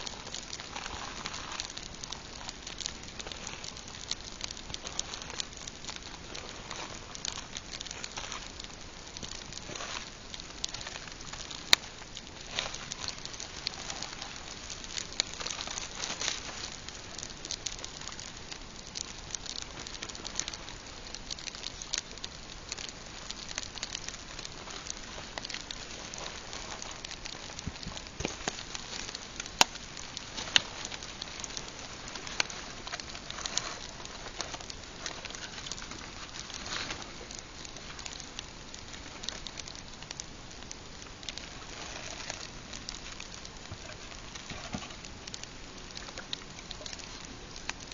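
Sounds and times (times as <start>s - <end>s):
campfire crackling and popping: 0.0s - 47.9s
sharp fire snaps: 0.0s - 47.9s.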